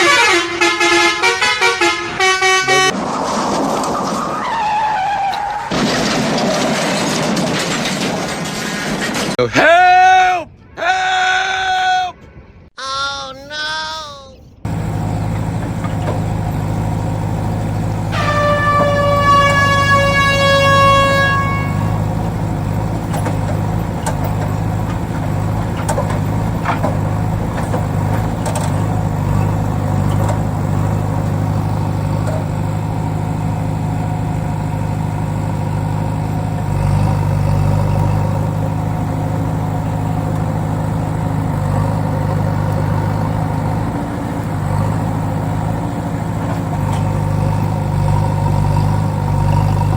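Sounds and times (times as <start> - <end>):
horn sounding: 0.0 - 3.0, 13.8 - 40.8
low engine drone: 0.0 - 4.6, 14.6 - 49.9.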